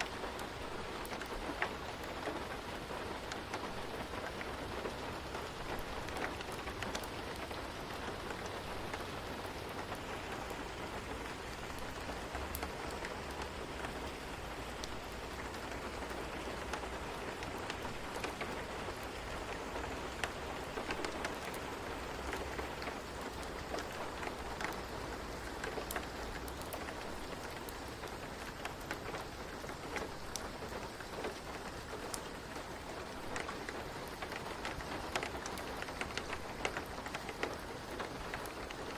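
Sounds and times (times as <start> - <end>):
rain on a hard surface: 0.0 - 38.9.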